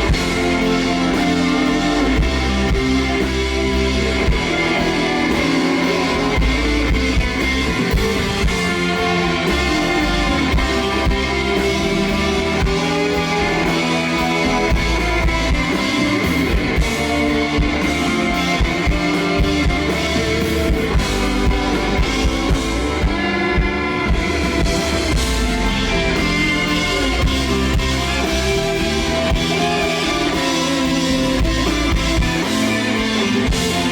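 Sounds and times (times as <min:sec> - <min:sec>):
drum kit beat: 0:00.0 - 0:33.9
guitars: 0:00.0 - 0:33.9.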